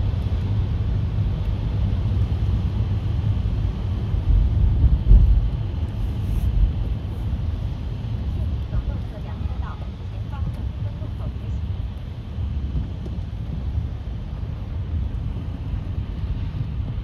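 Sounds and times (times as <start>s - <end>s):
car cabin road rumble: 0.0s - 17.0s
tyre hiss on wet road: 5.9s - 7.5s.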